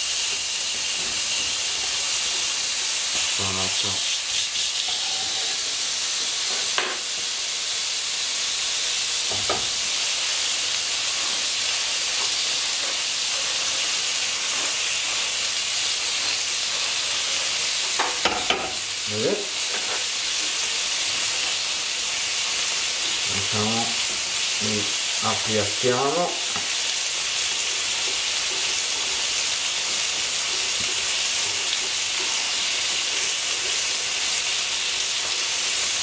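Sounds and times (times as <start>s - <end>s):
patties sizzling on a grill pan: 0.0s - 36.0s
pan clatter and scrape: 4.1s - 5.7s, 19.6s - 20.6s.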